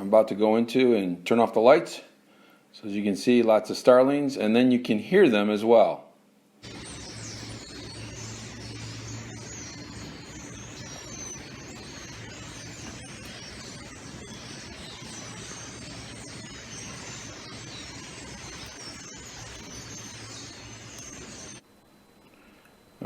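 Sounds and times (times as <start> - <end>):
steady low hum: 6.4 - 23.0
starling flock chattering: 6.6 - 21.6.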